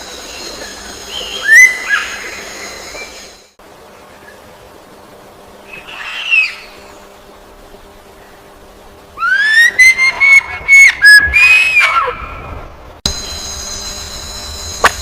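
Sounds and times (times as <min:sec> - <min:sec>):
bird whistled call: 0:01.1 - 0:03.2, 0:05.7 - 0:06.8, 0:09.2 - 0:12.2.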